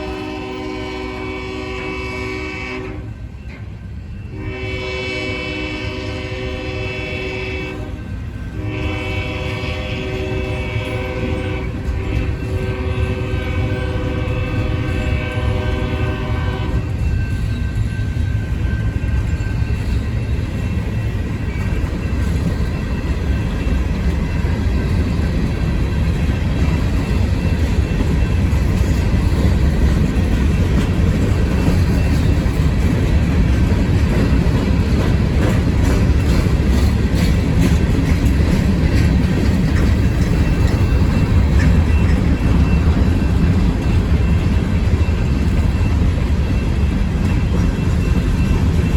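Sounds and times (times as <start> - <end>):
locomotive horn: 0.0 - 3.3, 4.3 - 17.0
train wheels rumbling on rails: 0.0 - 48.9.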